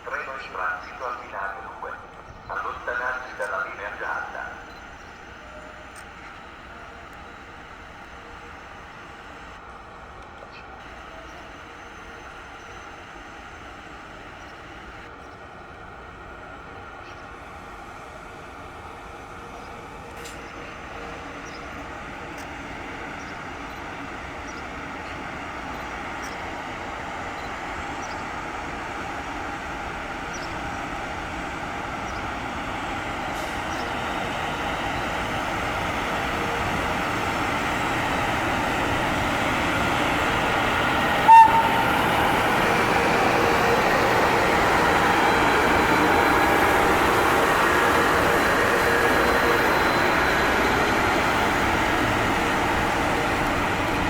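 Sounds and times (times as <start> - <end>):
train passing on rails: 0.0 - 54.0
train horn toot: 41.0 - 42.8.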